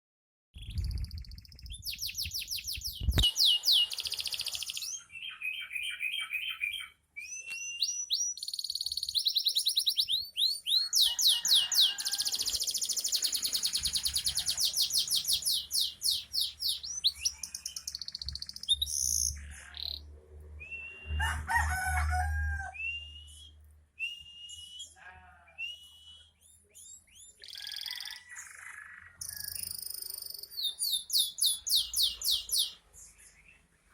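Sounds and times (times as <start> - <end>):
canary singing trills: 0.6 - 20.2, 25.8 - 33.7.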